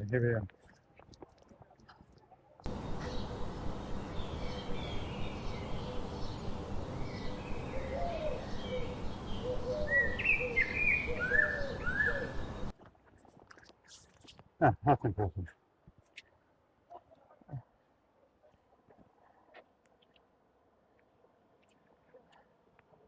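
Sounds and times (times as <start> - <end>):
birds chirping: 2.6 - 12.7
down-slurred bird calls: 2.8 - 12.7.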